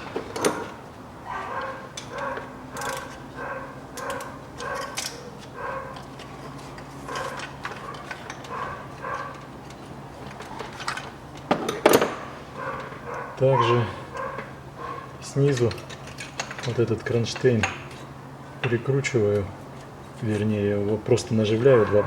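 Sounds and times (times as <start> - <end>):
steady low hum: 0.0 - 22.0
dog barking: 1.2 - 6.0, 7.1 - 9.4, 12.6 - 15.1, 21.7 - 22.0
tool clatter: 15.4 - 19.4.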